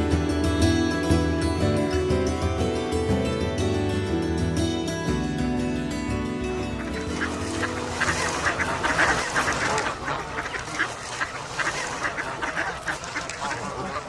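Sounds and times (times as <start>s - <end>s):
music: 0.0s - 14.0s
ducks and geese calling: 6.6s - 14.0s.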